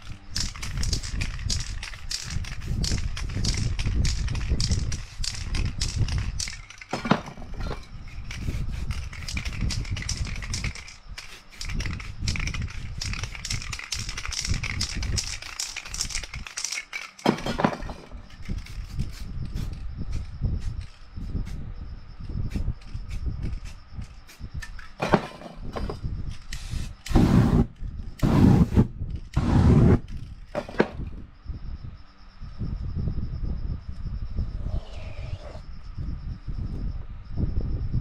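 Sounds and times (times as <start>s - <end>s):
spray cans rattling: 0.0s - 19.8s.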